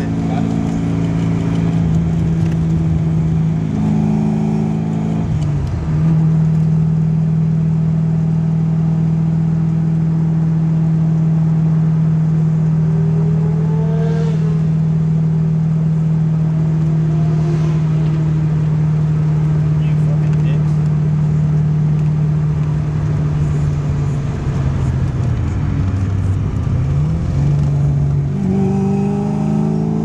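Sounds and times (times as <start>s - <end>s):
car engine droning: 0.0s - 30.0s
fainter engine rising in pitch: 12.7s - 21.4s, 22.0s - 30.0s.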